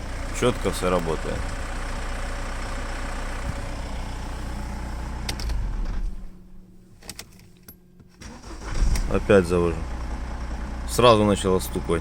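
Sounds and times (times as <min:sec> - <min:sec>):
diesel engine idling: 0:00.0 - 0:06.8, 0:08.2 - 0:12.0.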